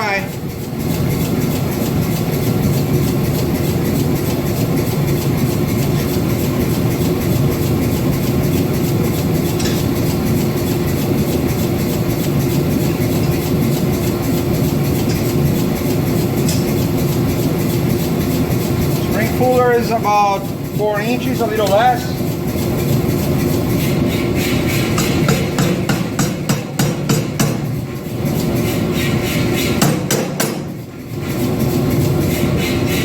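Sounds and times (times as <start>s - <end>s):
steady machine hum: 0.0s - 33.0s
power hammer pounding steel: 23.5s - 31.0s.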